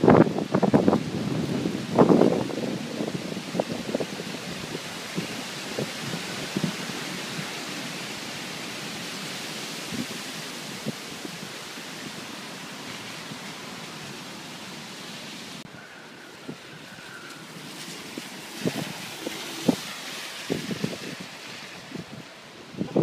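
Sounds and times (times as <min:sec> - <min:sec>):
storm wind and rain: 0:00.0 - 0:23.0.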